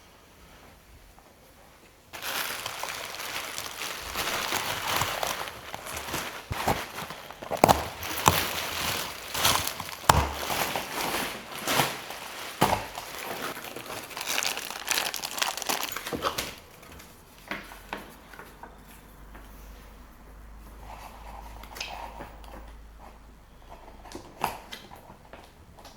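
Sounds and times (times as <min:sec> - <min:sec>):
packing material crinkling: 0:02.2 - 0:16.9.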